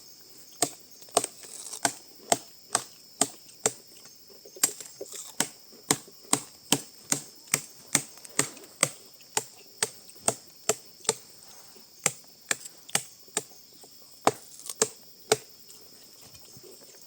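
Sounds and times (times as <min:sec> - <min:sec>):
sharp chopping strikes: 0:00.6 - 0:03.9, 0:04.6 - 0:11.2, 0:12.0 - 0:13.5, 0:14.2 - 0:15.5.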